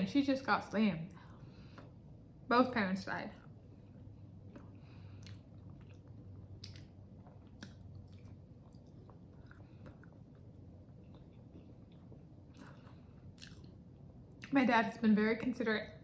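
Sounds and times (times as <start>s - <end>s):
faint low hum: 0.0s - 16.0s
person chewing food: 1.2s - 2.0s, 3.4s - 14.5s
mouth clicks and squishes: 4.5s - 12.8s.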